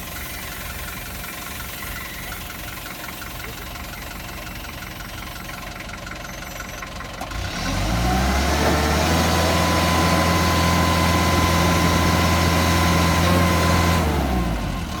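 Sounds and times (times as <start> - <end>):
forklift diesel engine revving: 0.0 - 15.0.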